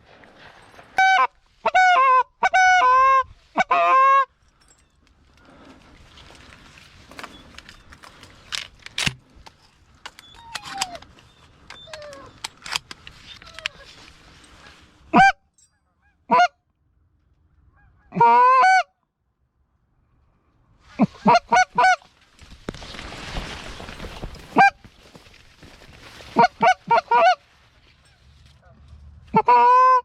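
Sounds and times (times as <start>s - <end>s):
goose honking: 1.0s - 4.3s, 17.7s - 18.9s, 21.0s - 22.1s, 26.3s - 30.0s.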